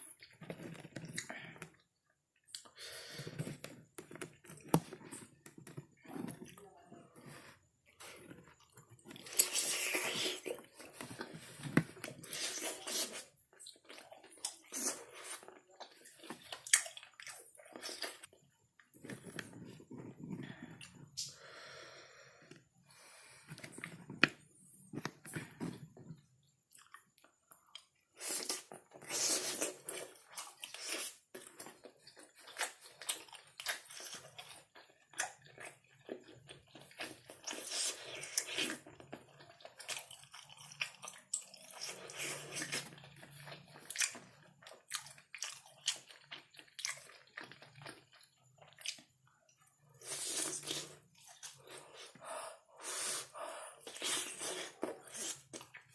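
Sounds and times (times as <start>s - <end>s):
chewing sticky food: 0.0s - 21.3s, 23.4s - 55.9s.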